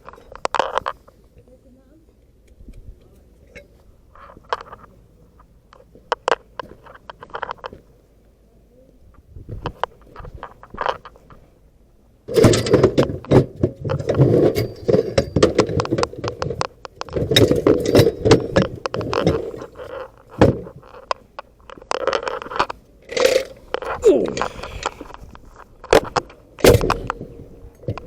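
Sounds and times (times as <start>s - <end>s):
tools and metal parts clinking: 12.3s - 25.2s.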